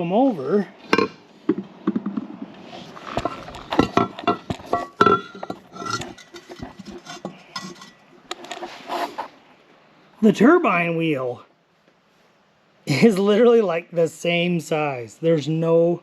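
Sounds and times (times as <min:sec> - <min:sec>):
metal clanks and clinks: 0:03.2 - 0:08.5.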